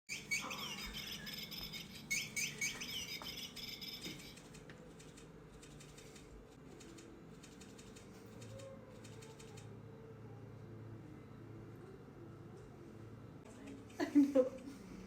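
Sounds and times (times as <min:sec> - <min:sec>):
toy bird chirping: 0:00.1 - 0:04.4
toy wings fluttering: 0:00.4 - 0:09.7.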